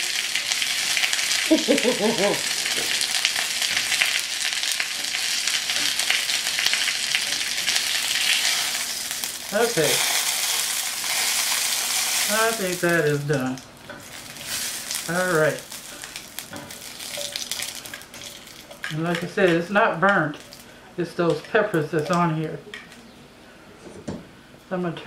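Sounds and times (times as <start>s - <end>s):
chicken sizzling in oil: 0.0s - 19.4s.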